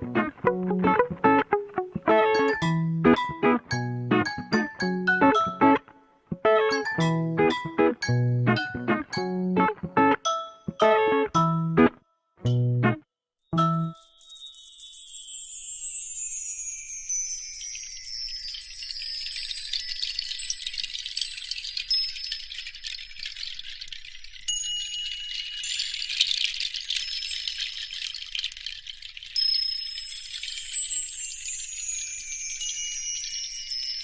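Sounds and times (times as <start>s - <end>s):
high-pitched tinkling chimes: 13.4s - 34.0s.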